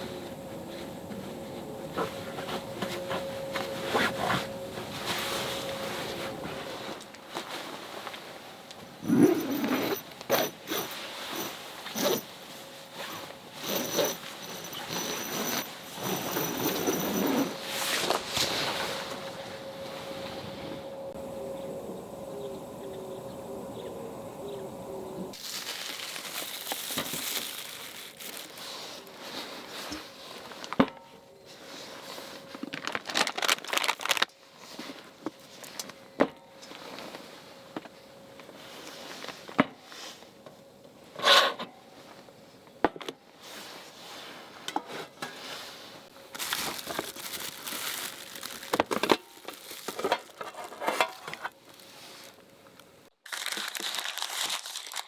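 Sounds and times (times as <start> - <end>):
steady hum: 0.0 - 7.2, 8.4 - 25.4
wrapping crumpled by hand: 25.4 - 29.7, 32.4 - 34.4, 46.3 - 55.0.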